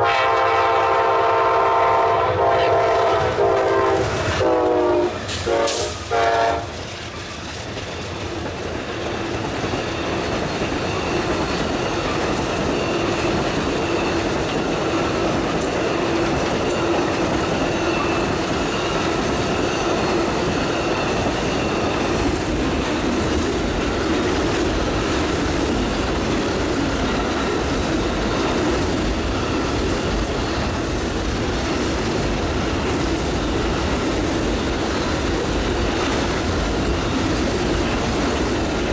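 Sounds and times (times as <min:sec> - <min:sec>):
train horn blast: 0:00.0 - 0:06.8
train wheels clattering over rail joints: 0:03.1 - 0:38.9.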